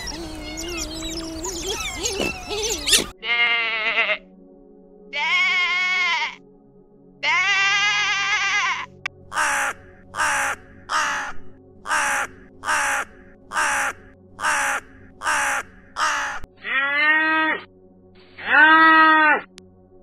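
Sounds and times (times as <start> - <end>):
calf mooing: 3.2 - 4.2
sheep bleating: 3.2 - 4.2, 5.1 - 6.4, 7.2 - 9.0
crow cawing: 7.4 - 17.6.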